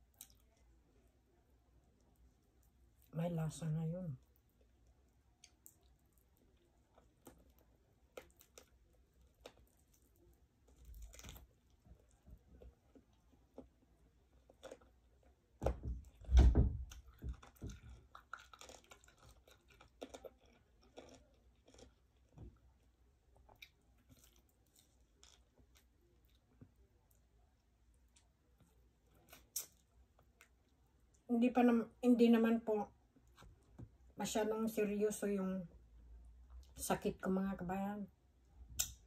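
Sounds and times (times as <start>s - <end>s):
person chewing meat: 4.3s - 15.4s, 16.9s - 22.7s
wet mouth clicks and crunches: 29.2s - 30.5s.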